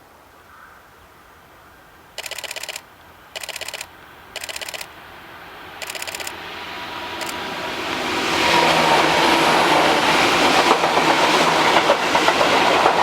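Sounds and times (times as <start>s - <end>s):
camera shutter clicking rapidly: 2.2s - 5.0s, 5.8s - 6.4s, 7.2s - 7.4s
train rumble: 3.4s - 13.0s.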